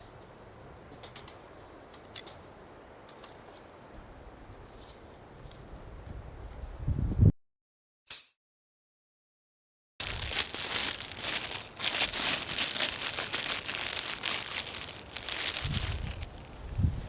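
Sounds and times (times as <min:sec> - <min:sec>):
dense continuous crinkling crackle: 0:10.0 - 0:17.0.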